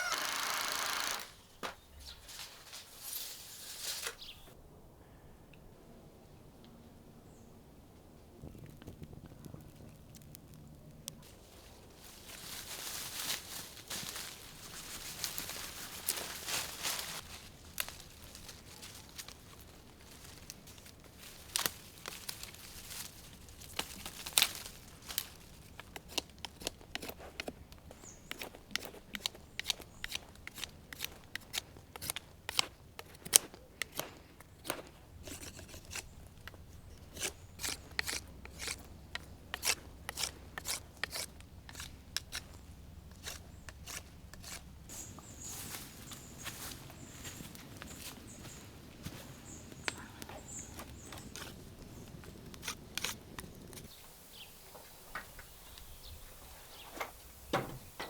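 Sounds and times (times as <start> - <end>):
sharp cutting snips: 28.3 - 44.6.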